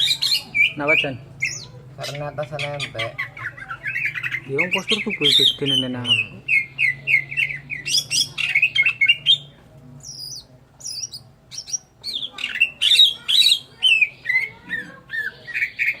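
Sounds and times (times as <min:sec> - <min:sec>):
bird chirping and whistling: 0:03.6 - 0:16.0.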